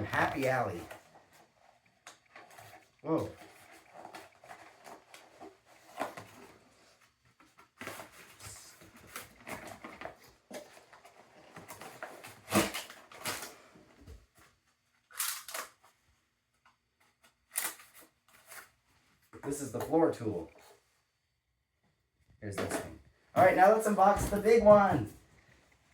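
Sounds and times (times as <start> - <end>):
packaging rustling and crinkling: 0.2 - 16.0.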